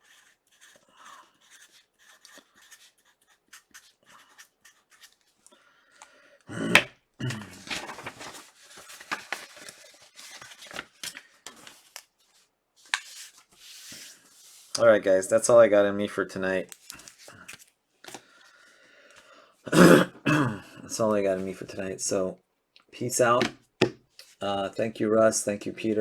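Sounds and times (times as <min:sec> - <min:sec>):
packaging rustling: 0:07.4 - 0:14.0
trading cards being handled: 0:07.6 - 0:14.8, 0:16.6 - 0:18.4.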